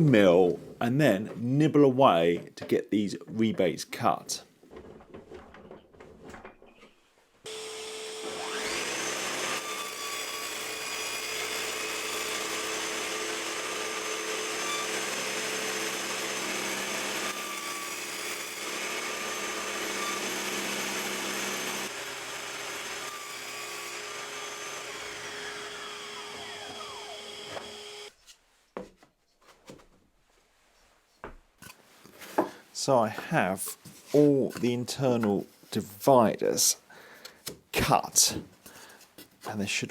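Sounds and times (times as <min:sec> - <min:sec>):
table saw whine: 0:07.5 - 0:28.1.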